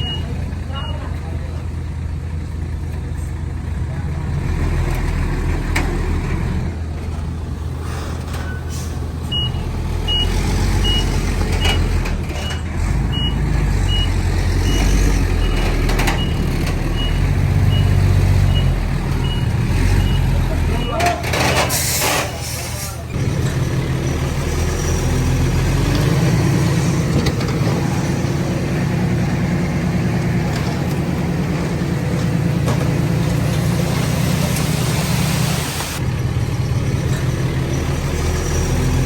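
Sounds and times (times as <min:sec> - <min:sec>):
heavy diesel machinery droning: 0:00.0 - 0:39.0
reversing alarm beeping: 0:09.3 - 0:21.7.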